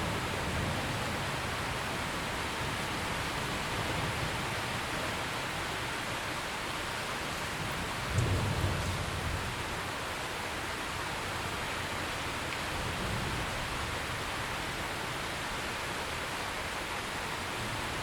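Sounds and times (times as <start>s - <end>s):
steady rain falling: 0.0s - 18.0s
low thunder rumble: 7.6s - 9.5s.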